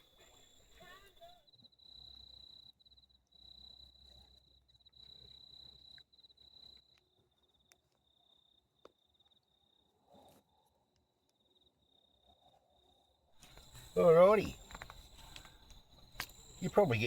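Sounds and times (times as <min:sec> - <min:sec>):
cricket trilling: 0:00.0 - 0:09.9, 0:11.4 - 0:17.0
faint ticks: 0:03.7 - 0:08.1, 0:13.4 - 0:16.8.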